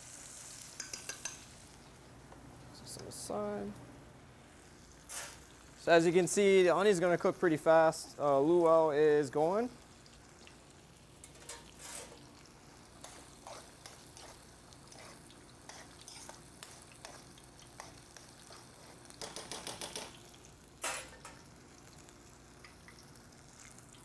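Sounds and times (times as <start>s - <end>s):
onions frying in oil: 0.0s - 2.0s, 4.4s - 24.0s
tweezers clicking on pan: 0.8s - 1.4s.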